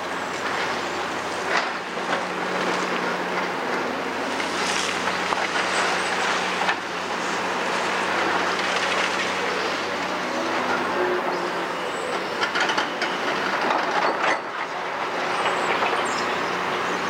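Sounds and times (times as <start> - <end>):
excavator diesel hum: 0.0 - 17.0
rubble and metal clattering: 12.1 - 16.0.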